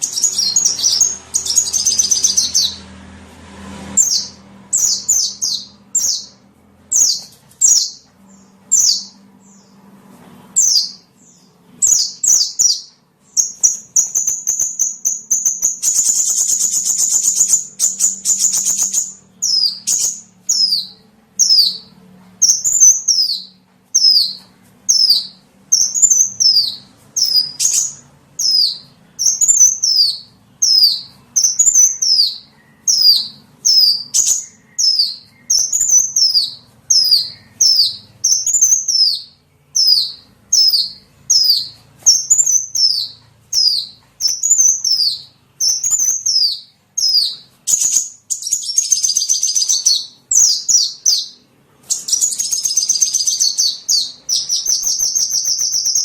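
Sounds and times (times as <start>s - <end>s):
bird lure call chirps: 54.3s - 56.0s.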